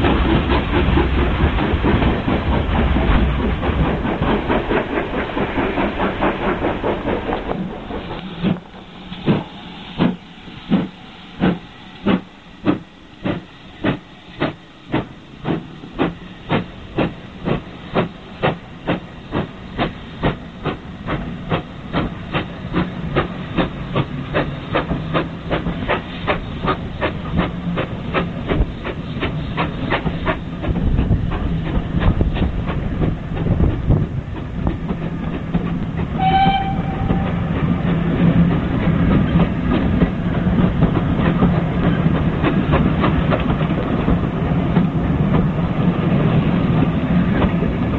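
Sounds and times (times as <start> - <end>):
steam locomotive exhaust beats: 0.0 - 47.9
train whistle: 36.2 - 37.5.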